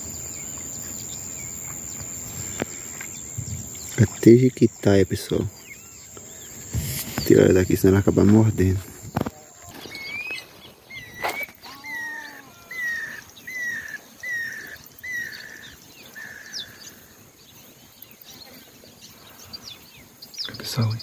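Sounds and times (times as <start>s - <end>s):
bird whistled notes: 9.8s - 15.4s.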